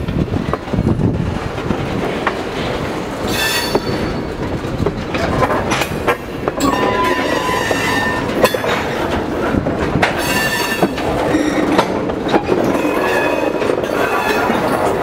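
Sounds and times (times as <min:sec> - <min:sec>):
train wheels clicking over rails: 0:00.0 - 0:15.0
high wheel squeal: 0:03.3 - 0:04.3, 0:06.6 - 0:08.7, 0:10.2 - 0:11.6, 0:12.6 - 0:14.6.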